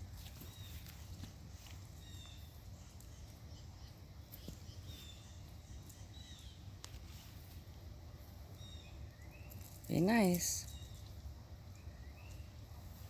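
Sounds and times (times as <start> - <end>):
faint birds chirping: 0.0 - 13.0
low steady rumble: 0.0 - 13.0.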